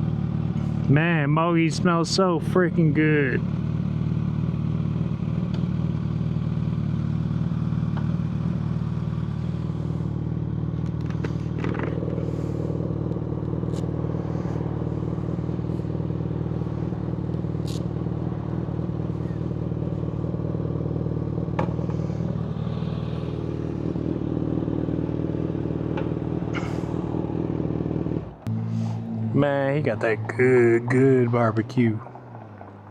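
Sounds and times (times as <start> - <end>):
motorcycle engine idling: 0.0 - 31.2.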